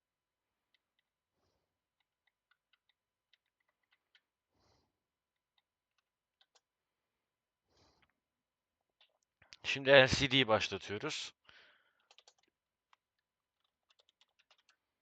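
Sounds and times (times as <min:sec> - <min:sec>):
keyboard typing: 0:12.0 - 0:13.0, 0:13.6 - 0:15.0.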